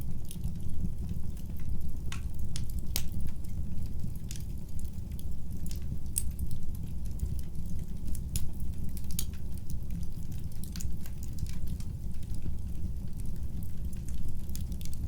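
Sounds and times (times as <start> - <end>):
fireplace fire crackling: 0.0 - 15.0.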